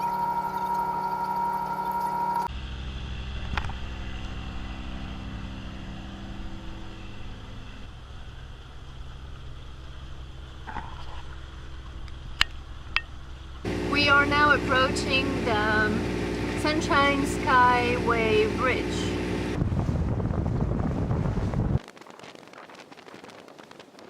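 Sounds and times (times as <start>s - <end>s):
boat engine droning: 0.0s - 21.8s
rush of wind and water: 13.7s - 24.0s.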